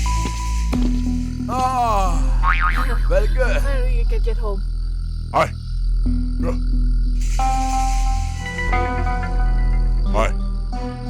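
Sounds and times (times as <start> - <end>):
high shimmering hiss: 0.0 - 11.0
sustained chord music: 6.1 - 11.0.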